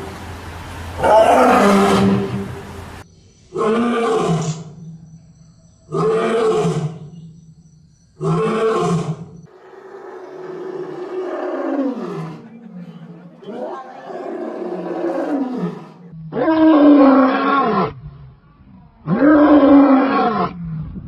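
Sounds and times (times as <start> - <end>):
large animal calling: 1.0 - 2.7, 3.6 - 4.9.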